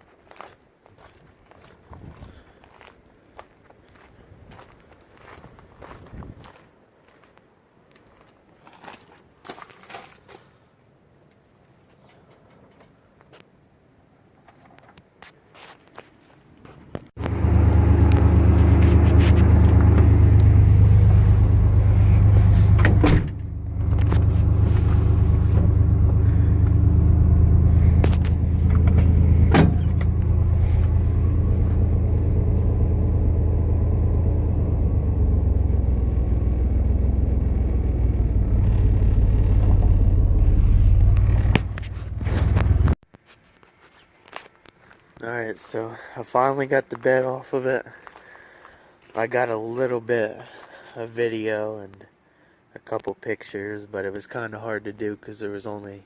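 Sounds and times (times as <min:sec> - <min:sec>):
vehicle engine running loudly: 0:17.2 - 0:43.0.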